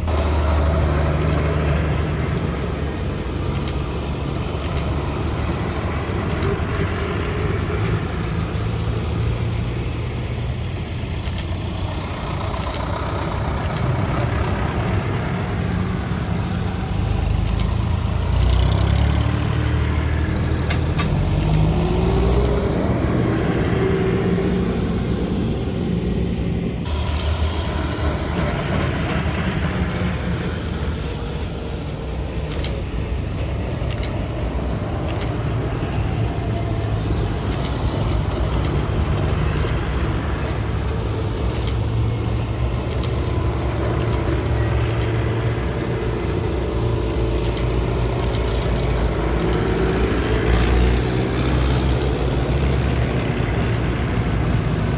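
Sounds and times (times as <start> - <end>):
tractor engines rumbling past: 0.0 - 54.9
faint high whine: 25.4 - 32.1.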